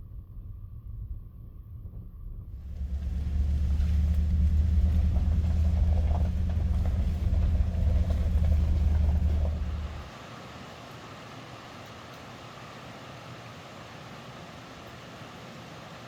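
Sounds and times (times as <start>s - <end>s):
truck engine and road noise: 2.6s - 10.1s.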